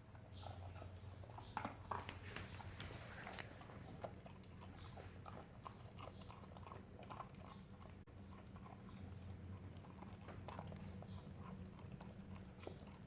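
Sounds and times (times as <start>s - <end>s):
puppy chewing clicks: 3.3s - 13.0s.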